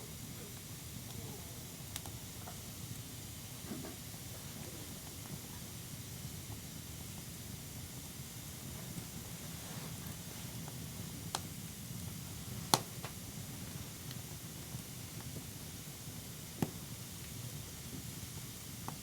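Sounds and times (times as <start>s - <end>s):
campfire hissing: 0.0s - 19.0s.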